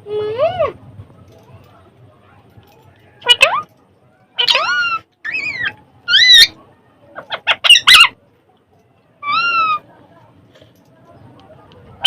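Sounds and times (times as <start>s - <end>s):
parrot squawking: 4.4s - 6.6s, 7.2s - 8.2s, 9.2s - 9.8s.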